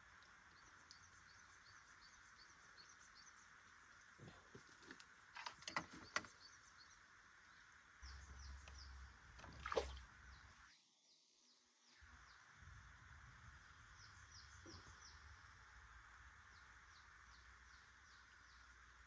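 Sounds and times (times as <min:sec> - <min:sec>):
bird chirping: 0:05.6 - 0:12.5, 0:13.8 - 0:15.5.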